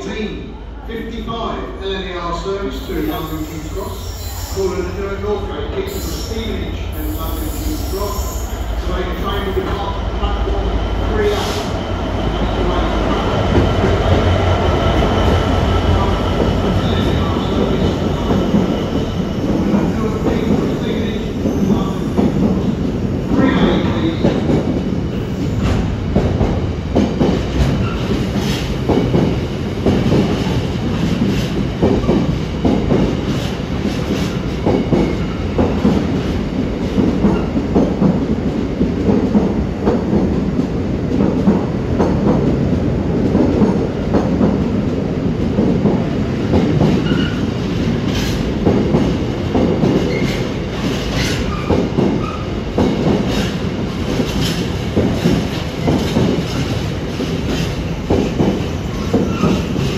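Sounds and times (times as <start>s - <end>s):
train wheels clattering on rails: 13.1s - 59.9s.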